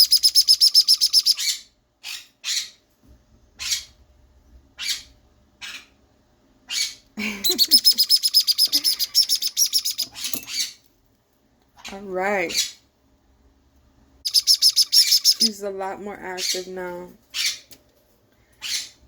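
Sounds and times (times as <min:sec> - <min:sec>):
parrot chick begging chirps: 0:00.0 - 0:02.8, 0:03.6 - 0:03.9, 0:04.8 - 0:06.0, 0:06.6 - 0:10.8, 0:11.8 - 0:12.8, 0:14.2 - 0:15.6, 0:17.3 - 0:17.7, 0:18.6 - 0:19.0.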